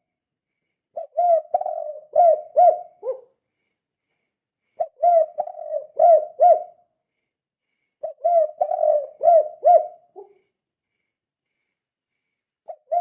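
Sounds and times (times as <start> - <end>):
dove cooing: 1.0 - 3.3, 4.8 - 6.8, 8.0 - 10.4, 12.7 - 13.0.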